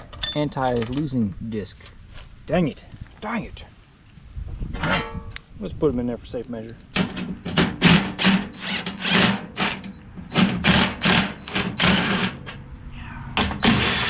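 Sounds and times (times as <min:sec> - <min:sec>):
power tool bursts: 0:07.7 - 0:12.5, 0:13.6 - 0:14.0.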